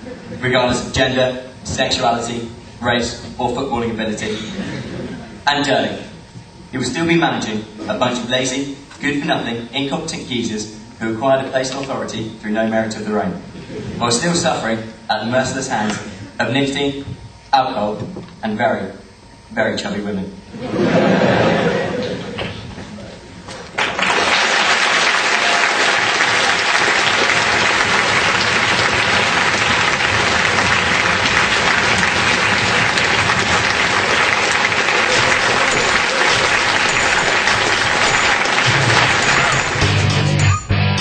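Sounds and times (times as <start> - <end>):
audience applauding: 23.7 - 40.5
rock music with electric guitar: 39.6 - 41.0.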